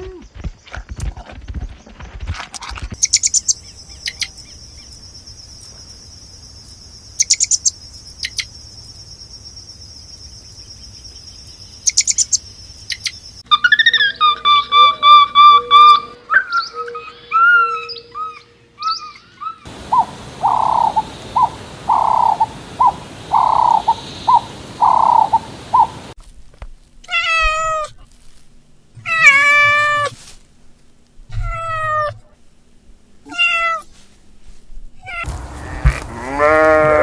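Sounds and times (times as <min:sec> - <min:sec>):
steady hiss: 0:19.7 - 0:26.2
short repeated animal calls: 0:35.2 - 0:37.0.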